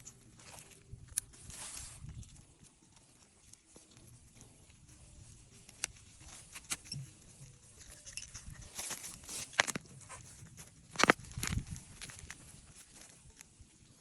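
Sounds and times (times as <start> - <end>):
rustling of plants and soil: 0.0 - 14.0.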